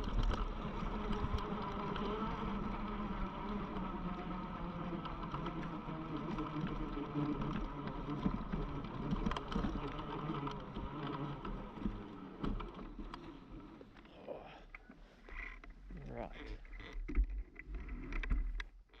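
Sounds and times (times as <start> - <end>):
electric motor whine: 0.0 - 14.1.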